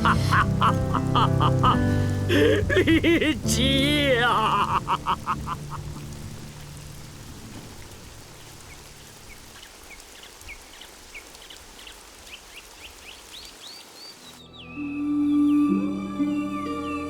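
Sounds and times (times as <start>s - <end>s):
rain falling: 0.0s - 14.4s
small birds chirping: 4.4s - 15.7s.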